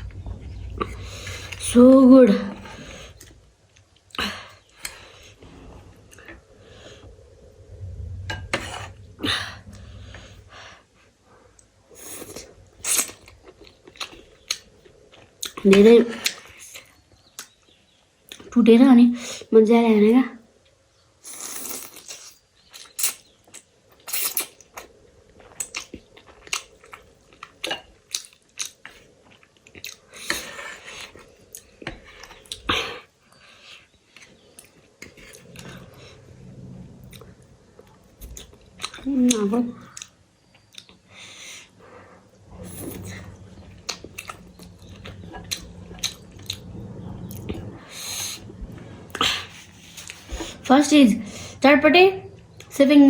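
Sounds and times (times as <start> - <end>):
low steady hum: 0.0 - 16.4, 34.2 - 53.0
chewing and crunching food: 12.1 - 18.6, 21.2 - 50.7.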